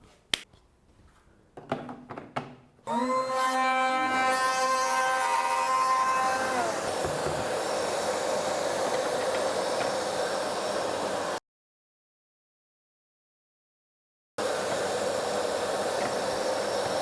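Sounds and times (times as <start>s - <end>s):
router bit cutting wood: 2.9s - 11.4s, 14.4s - 17.0s
router whining: 2.9s - 11.4s, 14.4s - 17.0s.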